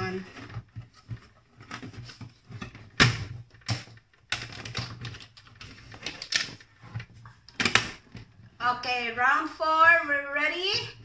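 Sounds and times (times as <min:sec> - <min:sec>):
small clicks and rustles: 0:00.0 - 0:08.5.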